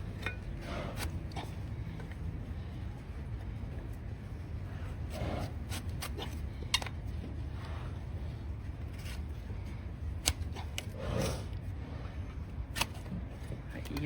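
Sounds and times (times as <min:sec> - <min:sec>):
trimming tools clipping hoof: 0:00.0 - 0:02.2, 0:05.1 - 0:07.7, 0:10.1 - 0:11.6, 0:12.7 - 0:14.0
low steady rumble: 0:00.0 - 0:14.0.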